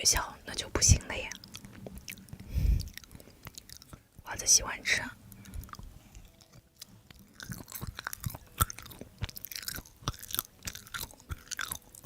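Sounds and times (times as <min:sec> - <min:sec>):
chewing soft food: 0:01.2 - 0:04.2, 0:05.2 - 0:12.0
wet mouth clicks and smacks: 0:05.4 - 0:12.0.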